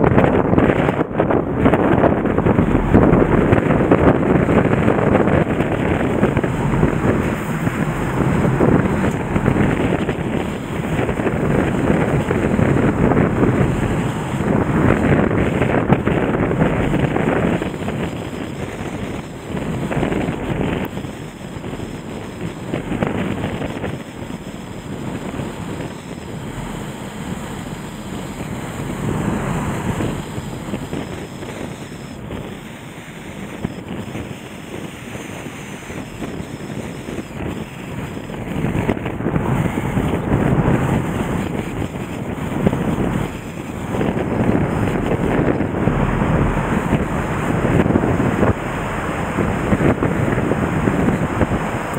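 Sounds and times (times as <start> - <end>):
wind buffeting microphone: 0.0 - 51.9
fast river water rushing: 1.5 - 23.6, 36.8 - 51.9.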